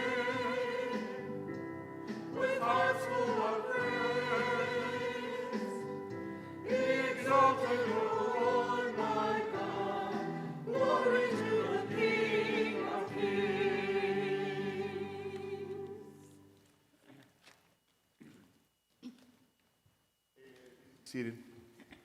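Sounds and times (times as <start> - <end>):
congregation and choir singing hymn: 0.0 - 16.3.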